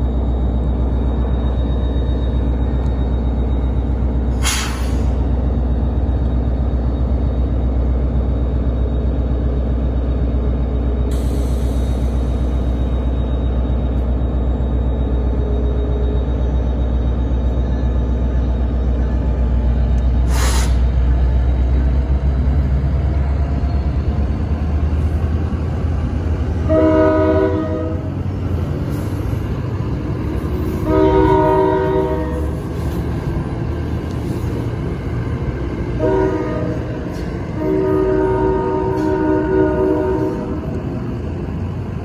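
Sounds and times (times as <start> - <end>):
diesel train rumbling: 0.0 - 42.0
short hiss: 20.3 - 20.8
locomotive horn: 26.6 - 28.1, 30.7 - 32.9, 35.9 - 40.8.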